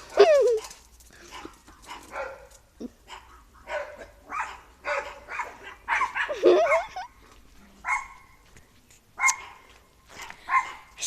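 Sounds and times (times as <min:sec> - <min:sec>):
dog barking: 0:00.1 - 0:07.0, 0:07.8 - 0:08.4, 0:09.2 - 0:09.7, 0:10.5 - 0:11.0.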